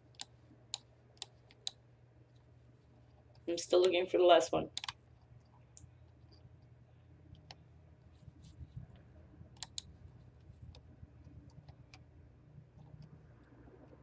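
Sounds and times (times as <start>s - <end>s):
computer mouse clicking: 0.0s - 2.4s, 4.7s - 5.0s, 9.6s - 12.1s
low steady hum: 0.0s - 14.0s.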